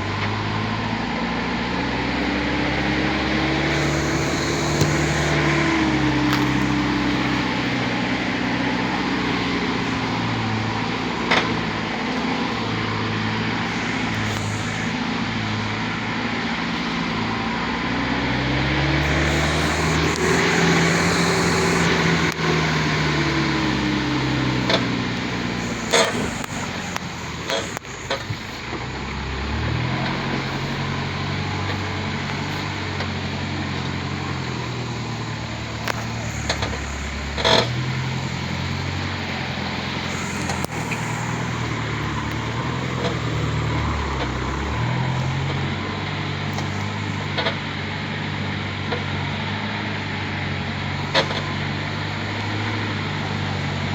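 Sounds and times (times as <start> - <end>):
truck engine labouring: 0.0 - 53.9.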